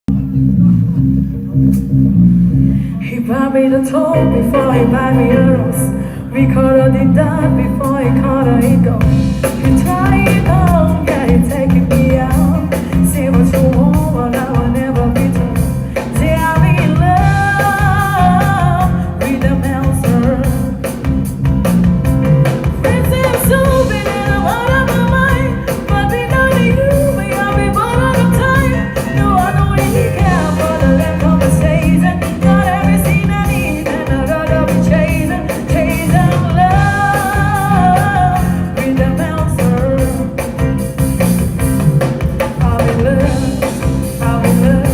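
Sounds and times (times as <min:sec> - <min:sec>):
band playing drums bass guitar: 0:00.1 - 0:44.9
person singing: 0:02.8 - 0:21.3, 0:22.6 - 0:40.8, 0:42.3 - 0:44.9.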